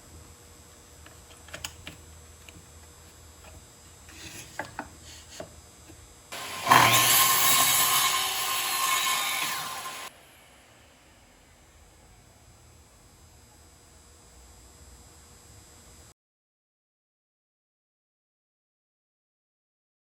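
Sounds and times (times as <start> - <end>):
miter saw cutting wood: 6.3 - 10.2.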